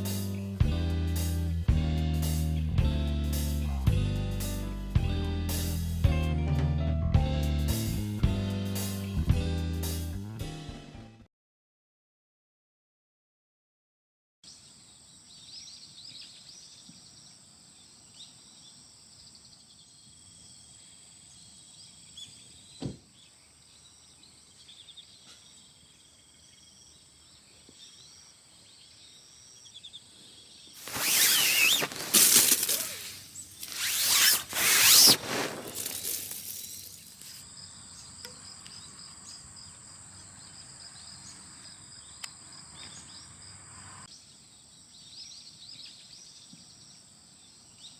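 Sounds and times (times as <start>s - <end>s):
insects chirping: 14.5s - 45.7s
loud rustling: 30.8s - 37.4s.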